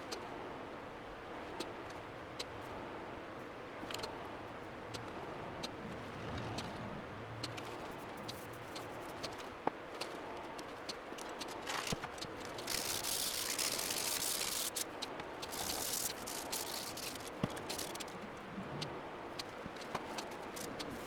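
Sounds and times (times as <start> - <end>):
spray paint can hissing: 11.6 - 18.1.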